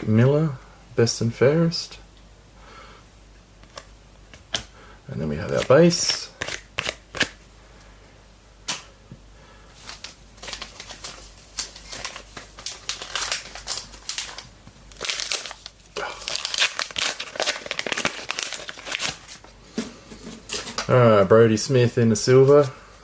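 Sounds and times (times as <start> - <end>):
wrapper crinkling and tearing: 9.8 - 19.5.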